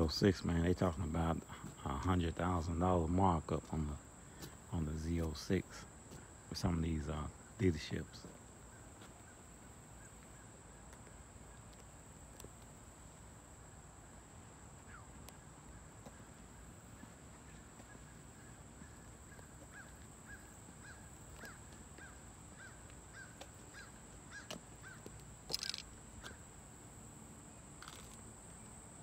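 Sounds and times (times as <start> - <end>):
insect drone: 0.0 - 29.0.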